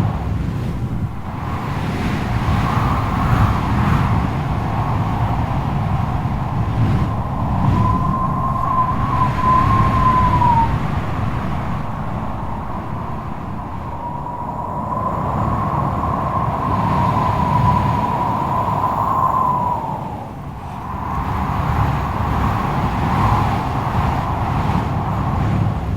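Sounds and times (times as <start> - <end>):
strong wind rumbling: 0.0 - 25.9
wavering wind whistle: 1.0 - 25.9.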